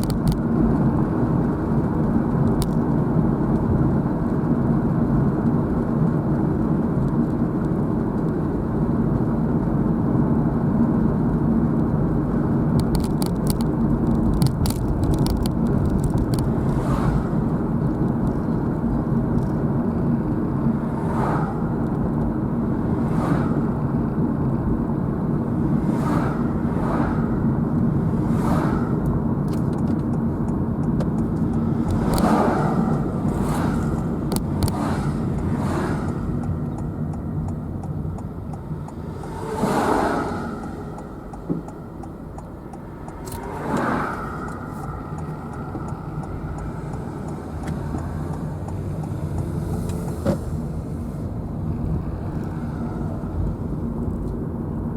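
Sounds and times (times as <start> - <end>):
car engine hum: 0.0 - 54.9
sharp clicks: 29.0 - 39.7, 40.6 - 50.2.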